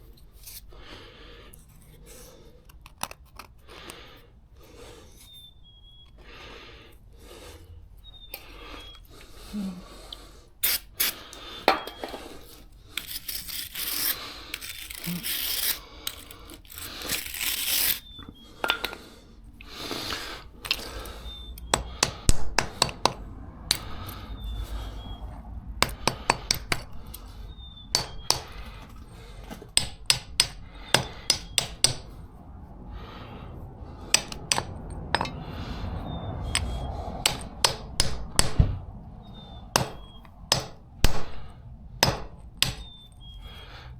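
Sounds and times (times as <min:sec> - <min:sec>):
tools scraping on metal: 0:10.6 - 0:19.1
sharp metallic taps and clinks: 0:34.2 - 0:35.4.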